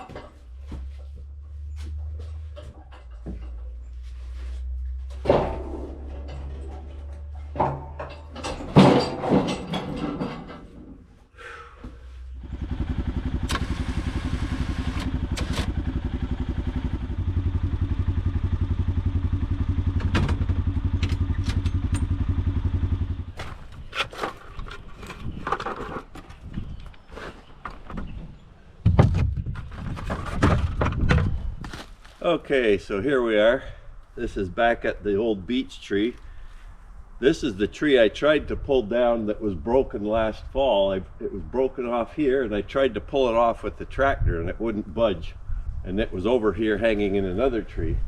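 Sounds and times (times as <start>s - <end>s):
metal knocks and clatter: 0.0s - 4.0s, 5.0s - 11.1s, 19.8s - 22.3s, 22.9s - 26.8s, 27.6s - 31.5s
atv engine running: 12.3s - 23.9s.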